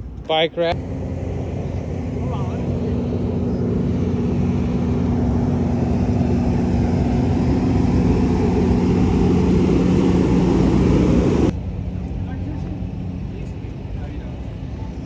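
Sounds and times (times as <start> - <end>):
engine droning hum: 0.0 - 15.0.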